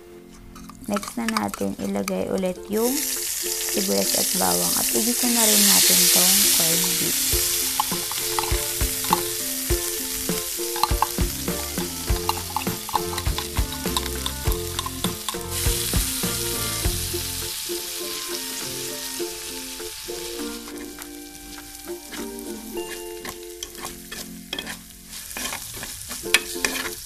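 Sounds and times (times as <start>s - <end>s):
utensil scraping meat from can: 0.3s - 2.5s, 6.8s - 17.1s, 22.0s - 27.0s
utensil scraping and tapping pan: 0.6s - 3.2s, 5.8s - 17.1s, 20.5s - 27.0s
meat sizzling in oil: 2.6s - 27.0s.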